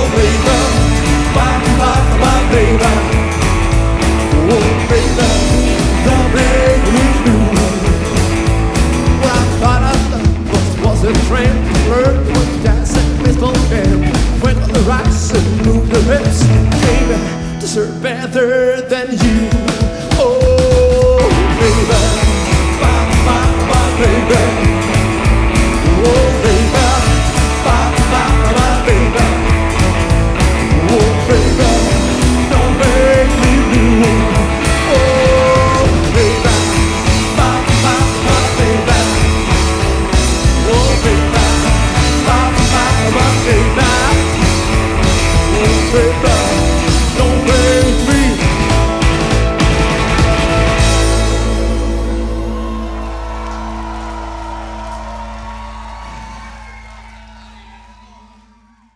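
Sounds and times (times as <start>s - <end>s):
drums and bass beat: 0.0s - 18.4s, 19.0s - 56.9s
lead melody line bending: 21.6s - 54.9s.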